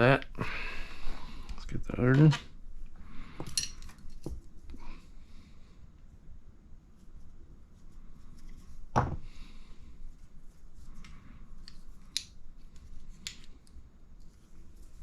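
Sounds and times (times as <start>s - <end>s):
dull knock on workbench: 9.0s - 9.2s.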